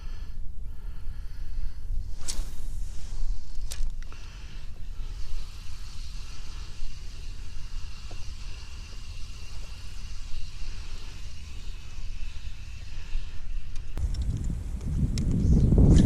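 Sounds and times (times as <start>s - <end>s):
hiss: 2.1s - 14.0s
wind rumbling on microphone: 4.9s - 16.0s.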